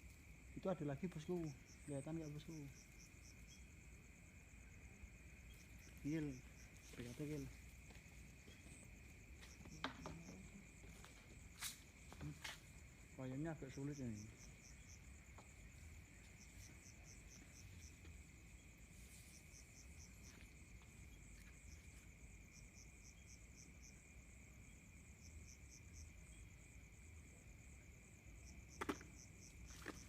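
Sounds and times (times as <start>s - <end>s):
high-pitched insect trill: 0.0s - 30.0s
rapid cricket chirps: 0.0s - 30.0s.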